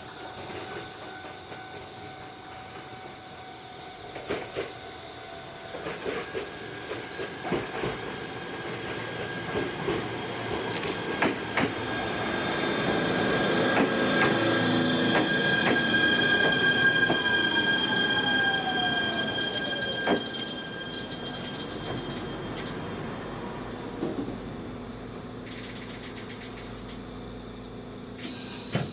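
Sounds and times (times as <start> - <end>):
electric train running on rails: 0.0 - 28.9
falling tone of train slowing: 0.0 - 28.9
squealing whine: 0.0 - 28.9
wheels clicking over rail joints: 5.7 - 11.9, 13.5 - 17.3.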